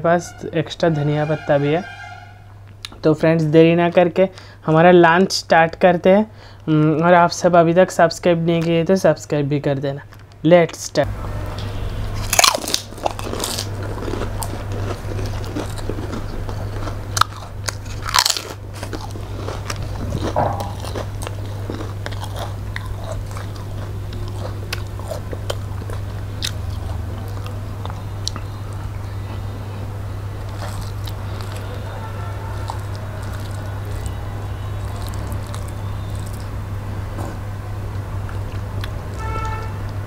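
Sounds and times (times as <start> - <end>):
steady low hum: 0.0 - 40.0
crunching and chewing: 12.2 - 36.6.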